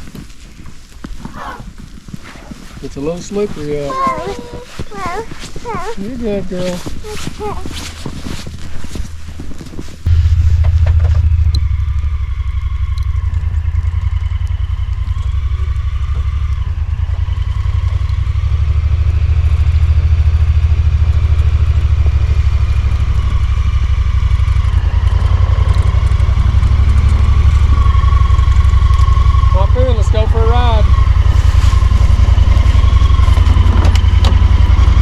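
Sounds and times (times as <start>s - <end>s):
farm vehicle engine running: 10.1s - 35.0s.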